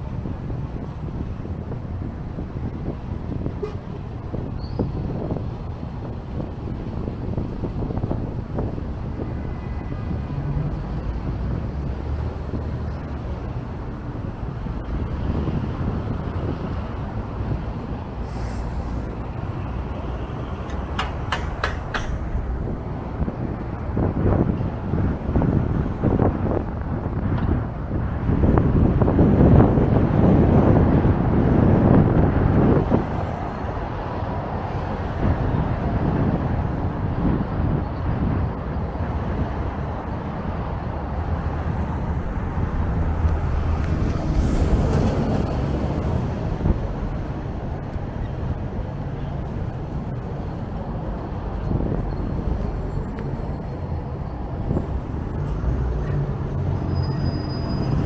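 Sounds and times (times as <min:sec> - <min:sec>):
wind buffeting microphone: 0:00.0 - 0:58.0
short hiss: 0:18.2 - 0:19.2.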